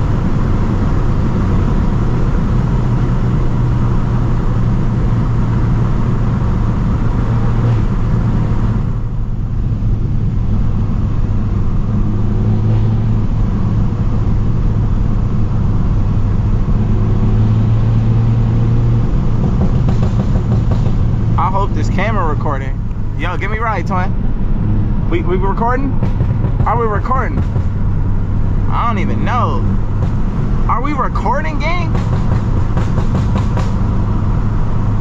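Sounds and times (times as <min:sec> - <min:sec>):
car exhaust droning: 0:00.0 - 0:35.0
road and air hiss: 0:17.3 - 0:35.0.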